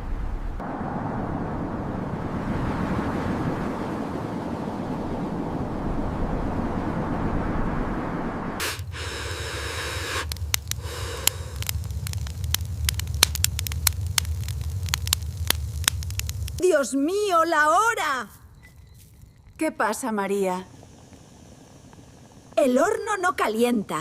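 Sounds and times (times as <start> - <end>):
sharp crackles and pops: 8.6 - 24.0
low rumble: 10.2 - 16.6.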